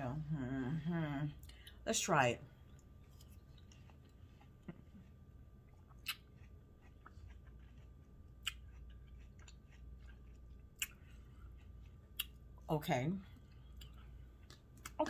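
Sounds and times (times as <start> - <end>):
person chewing watermelon: 2.7 - 12.6, 13.3 - 15.0.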